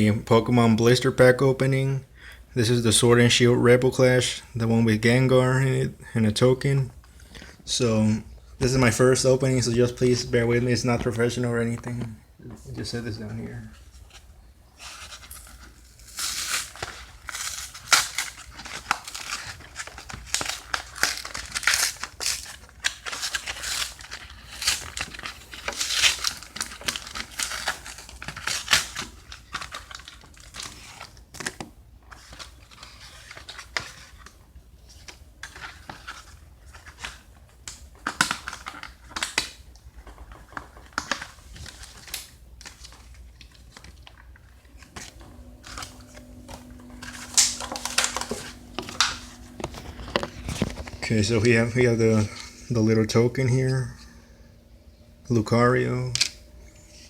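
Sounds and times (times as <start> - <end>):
plastic packaging crinkling and tearing: 13.4 - 52.4.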